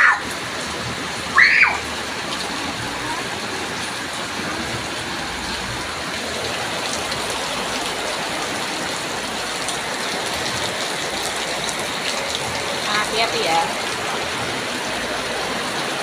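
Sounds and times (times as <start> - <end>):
steady rain falling: 0.0 - 16.0
child shouting: 1.3 - 1.8.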